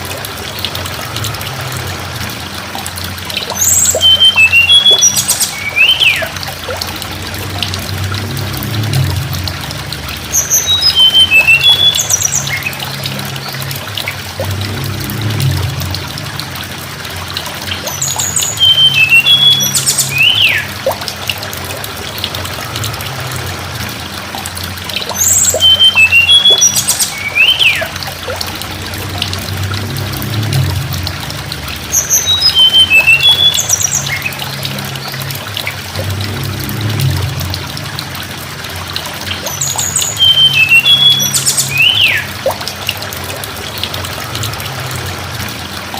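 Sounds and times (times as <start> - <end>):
low hum and hiss: 0.0 - 45.9
bird singing high whistled notes: 3.5 - 6.4, 10.4 - 12.8, 17.9 - 20.7, 25.1 - 27.9, 32.0 - 34.3, 39.5 - 42.3.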